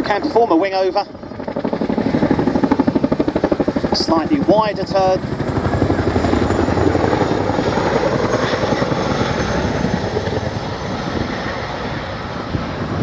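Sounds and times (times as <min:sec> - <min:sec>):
helicopter blades chopping: 0:00.0 - 0:13.0
helicopter engine whine: 0:00.0 - 0:13.0.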